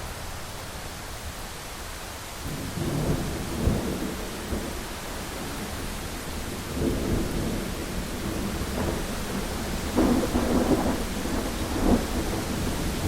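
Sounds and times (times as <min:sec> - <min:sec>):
heavy rain on a window: 0:00.0 - 0:13.0
thunder rolling: 0:02.5 - 0:13.0
sharp thunder crack: 0:06.6 - 0:13.0.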